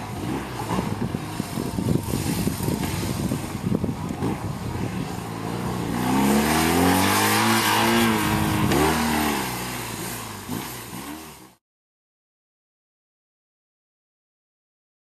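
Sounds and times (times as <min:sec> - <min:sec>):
motorcycle engine accelerating: 0:00.0 - 0:11.6.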